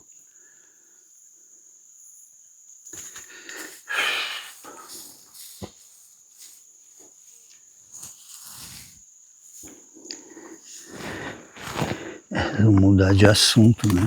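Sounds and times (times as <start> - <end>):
insect trilling: 7.9 - 14.0
footsteps on stony trail: 10.9 - 14.0.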